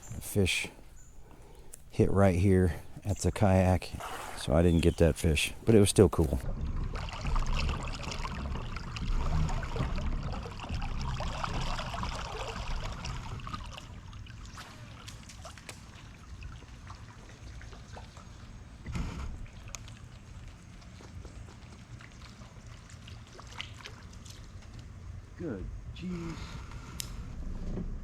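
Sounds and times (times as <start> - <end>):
water trickling and dripping: 6.4 - 18.8, 19.5 - 25.3.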